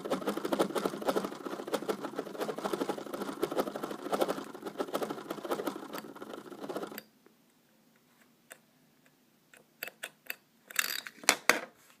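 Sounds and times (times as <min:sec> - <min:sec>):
scattered clicks and knocks: 0:00.0 - 0:07.0.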